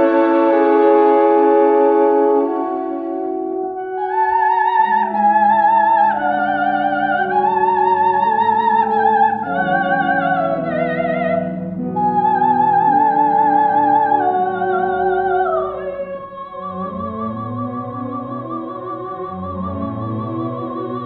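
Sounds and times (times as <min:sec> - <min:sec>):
orchestral chords: 0:00.0 - 0:04.4
soprano singing with vibrato: 0:03.9 - 0:21.0.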